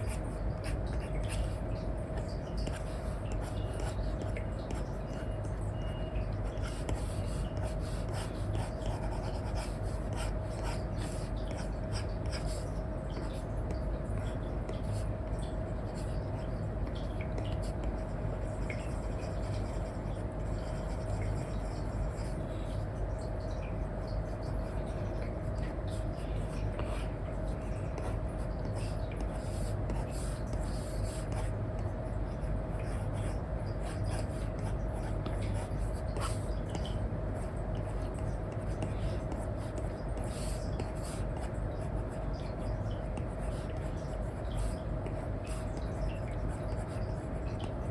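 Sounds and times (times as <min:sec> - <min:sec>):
stylus scratching on screen: 0:00.0 - 0:23.1
low background hum: 0:00.0 - 0:47.9.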